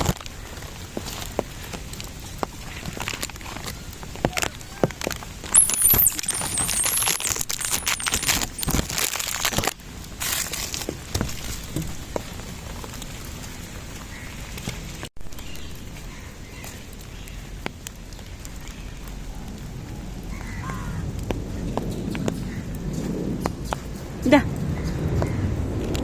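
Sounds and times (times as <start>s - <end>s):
rain pattering: 0.0s - 26.0s
high wavering squeals: 5.5s - 8.8s.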